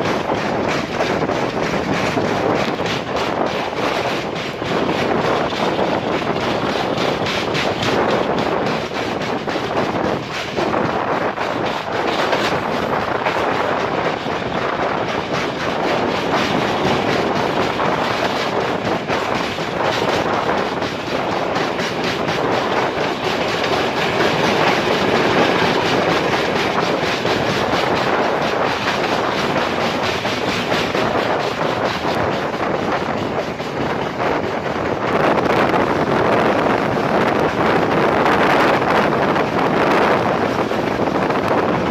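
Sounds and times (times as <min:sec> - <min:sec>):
train rolling rush: 0:00.0 - 0:41.9
wheels clicking over rail joints: 0:00.0 - 0:41.9.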